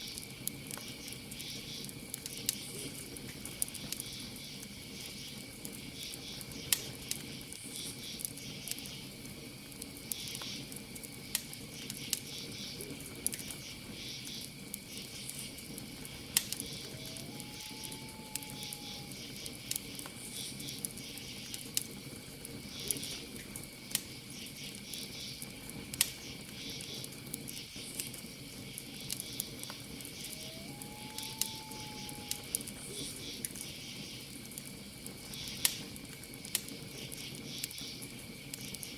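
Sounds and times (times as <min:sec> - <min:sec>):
campfire crackling and popping: 0:00.0 - 0:38.9
crickets trilling: 0:00.0 - 0:38.9
long hooting call: 0:16.6 - 0:19.6, 0:30.0 - 0:33.1.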